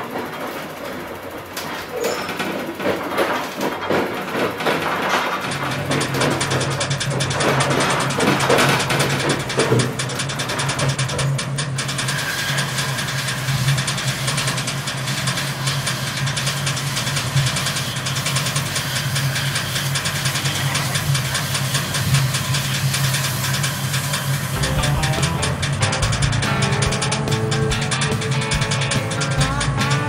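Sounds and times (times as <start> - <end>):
ticking and rushing noise: 2.4 - 30.0
train low hum: 20.0 - 30.0.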